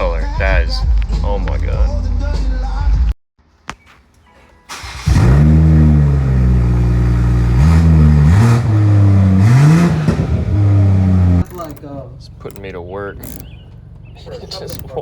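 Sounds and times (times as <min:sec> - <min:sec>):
car engine idling and revving: 0:04.8 - 0:15.0.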